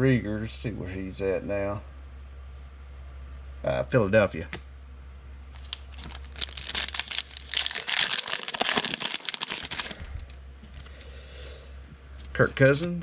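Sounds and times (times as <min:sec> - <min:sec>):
foil wrapper tearing and crinkling: 0:05.6 - 0:10.4.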